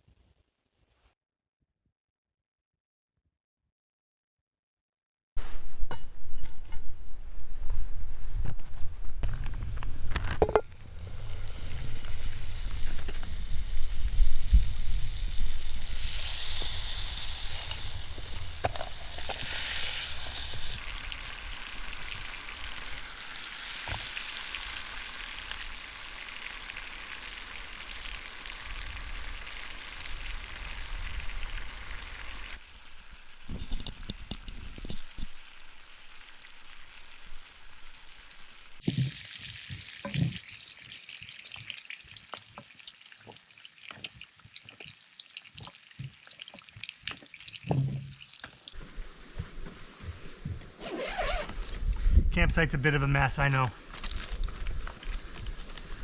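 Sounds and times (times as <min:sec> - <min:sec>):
rain hissing: 0:07.2 - 0:38.8, 0:48.7 - 0:56.0
wind rumble on microphone: 0:51.6 - 0:52.8.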